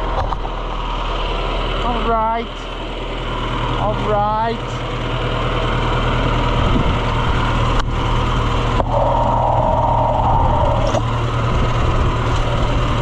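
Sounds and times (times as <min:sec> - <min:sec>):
farm vehicle engine running: 0:00.0 - 0:13.0
high whine: 0:03.6 - 0:13.0.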